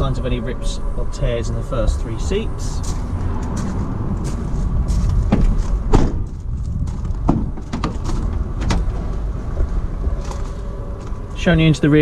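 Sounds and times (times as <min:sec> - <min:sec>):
wind rumble on microphone: 0:00.0 - 0:12.0
sharp knocks and clicks: 0:06.9 - 0:10.4.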